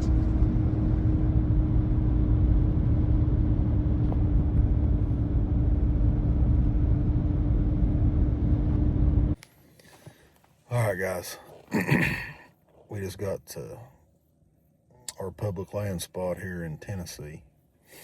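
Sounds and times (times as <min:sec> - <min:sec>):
vehicle engine rumble: 0:00.0 - 0:10.1.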